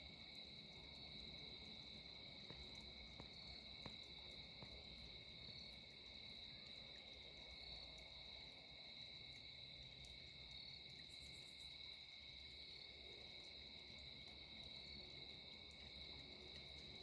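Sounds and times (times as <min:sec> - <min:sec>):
crickets trilling: 0:00.0 - 0:17.0
soft ticks: 0:00.3 - 0:05.8.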